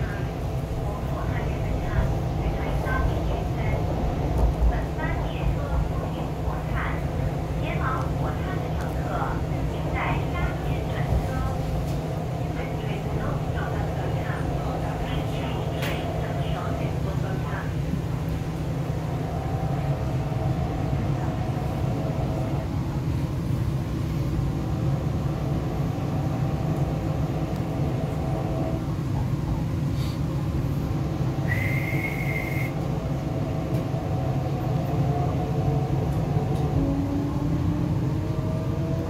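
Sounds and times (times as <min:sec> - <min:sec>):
wheels rumbling on rail: 0:00.0 - 0:39.0
high whistling tone: 0:31.4 - 0:32.8.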